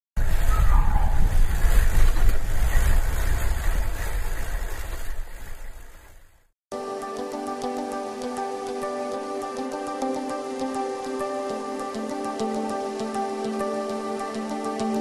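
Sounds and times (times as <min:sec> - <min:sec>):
wind rumble: 0:00.2 - 0:06.1.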